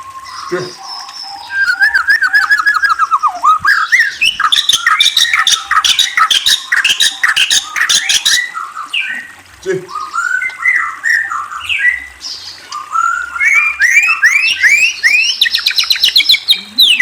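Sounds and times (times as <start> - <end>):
songbird trills and whistles: 1.2 - 8.5, 12.7 - 17.0.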